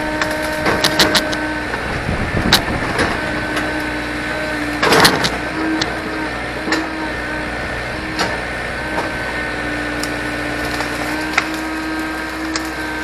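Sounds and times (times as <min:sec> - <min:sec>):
scraping crunch: 0:00.0 - 0:01.8
excavator diesel engine running: 0:00.0 - 0:13.0
hydraulic whine: 0:00.0 - 0:13.0.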